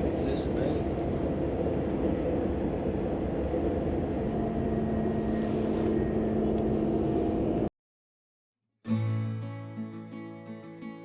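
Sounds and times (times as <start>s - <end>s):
train rumble and hiss: 0.0s - 4.1s.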